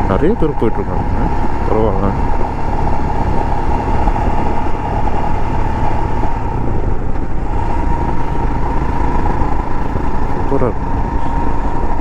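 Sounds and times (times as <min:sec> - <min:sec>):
motorcycle engine running: 0:00.0 - 0:12.0
steady whine: 0:00.0 - 0:12.0
wind and road noise: 0:00.0 - 0:12.0.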